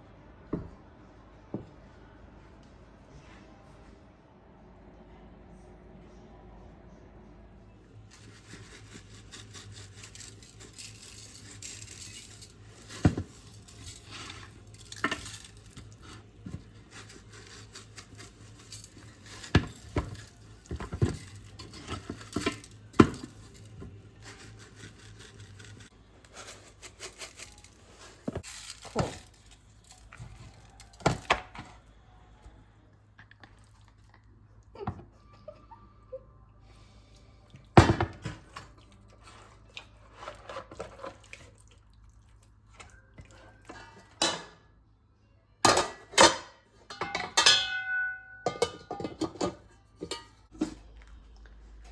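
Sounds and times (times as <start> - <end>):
dishes and utensils clinking: 42.8 - 44.7, 45.6 - 51.1.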